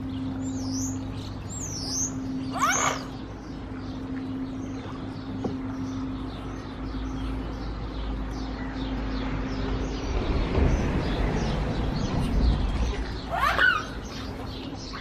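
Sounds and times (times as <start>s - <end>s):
small birds chirping: 0.0s - 15.0s
steady low hum: 0.0s - 15.0s
low rumble: 9.0s - 13.4s.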